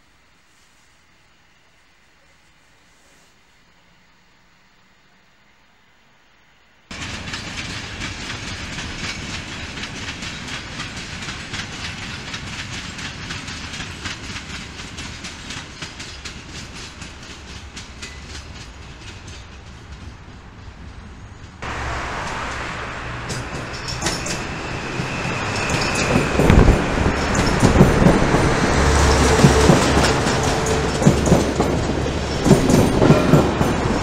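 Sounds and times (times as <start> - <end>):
train wheels rolling on rails: 6.9 - 34.0
wheels clicking over rail joints: 6.9 - 34.0.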